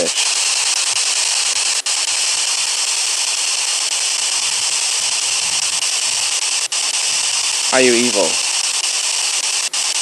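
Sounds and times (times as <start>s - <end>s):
radio static hissing: 0.0s - 10.0s.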